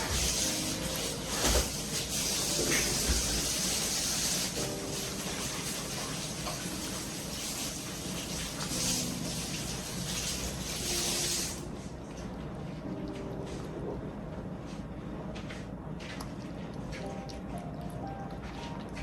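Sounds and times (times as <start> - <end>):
outdoor rushing hiss: 0.0 - 11.7.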